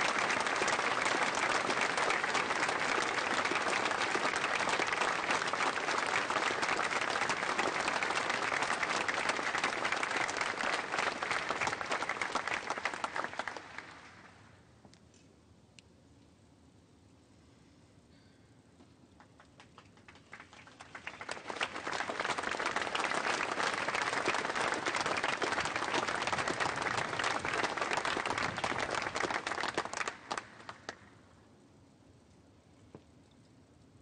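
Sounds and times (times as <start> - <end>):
audience applauding: 0.0 - 14.4, 19.2 - 31.1.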